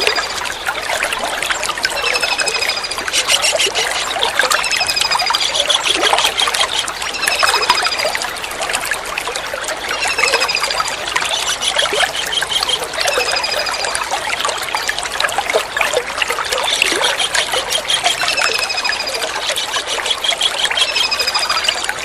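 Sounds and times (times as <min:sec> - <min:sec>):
water trickling: 0:00.0 - 0:22.0
kingfisher high thin calls: 0:02.0 - 0:08.0.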